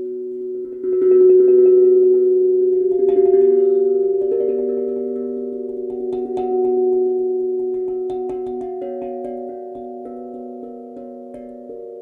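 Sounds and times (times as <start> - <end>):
steel tongue drum notes ringing: 0.0 - 12.0.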